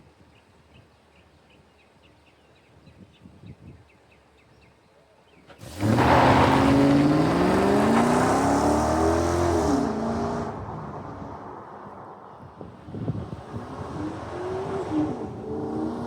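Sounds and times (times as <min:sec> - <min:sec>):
truck engine accelerating hard: 0:05.5 - 0:16.0.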